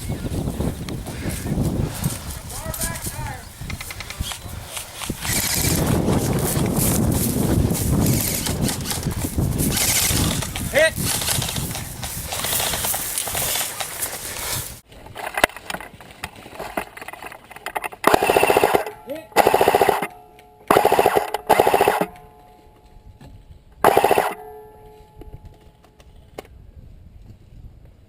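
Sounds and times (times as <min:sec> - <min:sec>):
airsoft rifle bursts: 0:17.8 - 0:22.5, 0:23.8 - 0:25.5.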